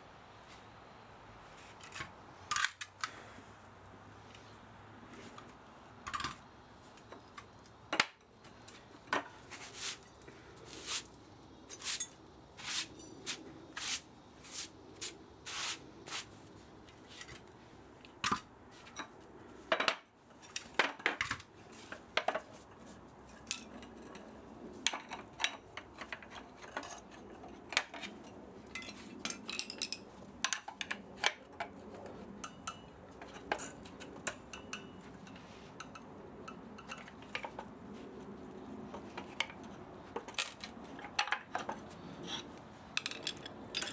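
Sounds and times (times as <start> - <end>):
metal tool clinks and clicks: 43.0 - 43.9.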